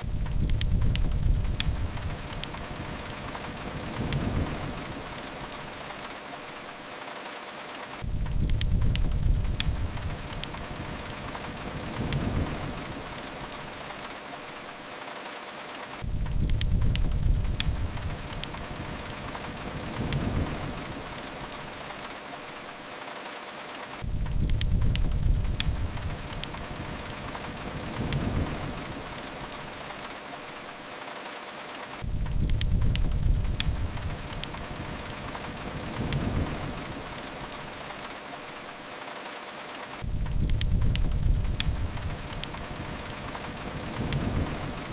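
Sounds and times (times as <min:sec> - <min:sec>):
low rumble: 0:00.0 - 0:02.7, 0:40.0 - 0:44.9
rain on a window: 0:00.0 - 0:44.9
wood fire crackling: 0:00.0 - 0:44.9.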